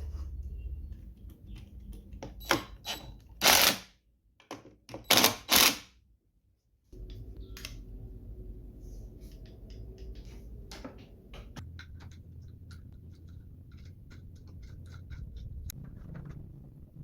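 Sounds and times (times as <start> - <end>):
low steady hum: 7.0 - 17.0
sharp clicks and knocks: 9.4 - 17.0.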